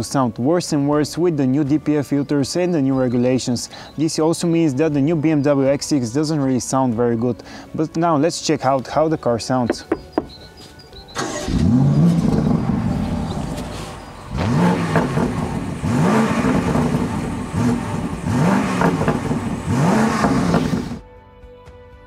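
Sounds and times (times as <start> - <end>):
car engine revving: 11.2 - 21.0.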